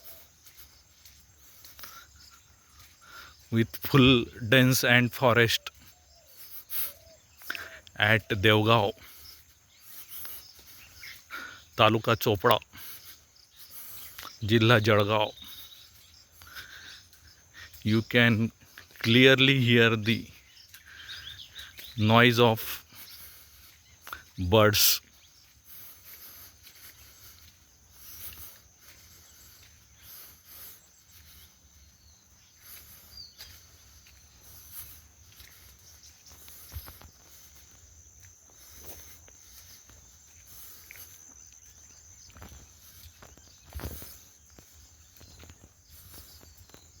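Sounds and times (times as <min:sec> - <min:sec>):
bird chirps: 0:00.0 - 0:47.0
insect drone: 0:00.0 - 0:47.0.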